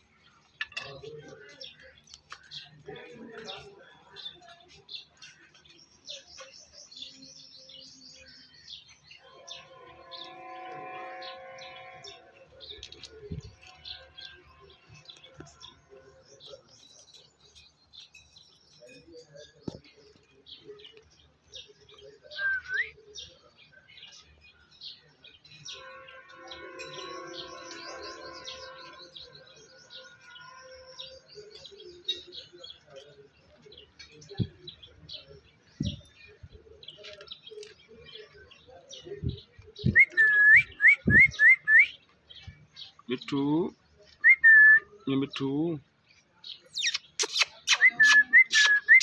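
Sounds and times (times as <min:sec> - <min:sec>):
birds chirping: 0:00.0 - 0:49.0.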